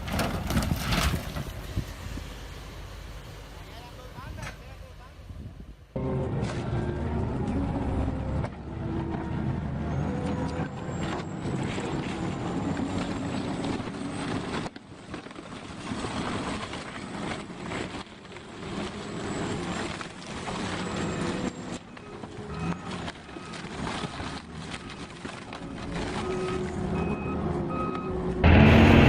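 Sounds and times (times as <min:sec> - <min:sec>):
construction machine engine running: 0:26.2 - 0:29.0.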